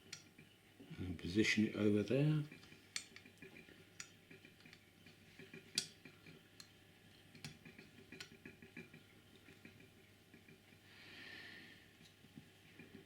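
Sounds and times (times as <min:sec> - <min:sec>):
small parts clicking and tapping: 0:00.0 - 0:00.5, 0:02.4 - 0:10.8.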